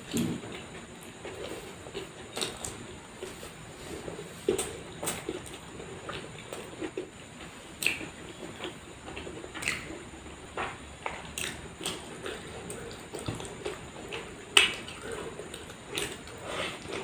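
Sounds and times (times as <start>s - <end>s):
wet chewing and lip smacks: 7.8s - 10.0s, 11.2s - 17.0s.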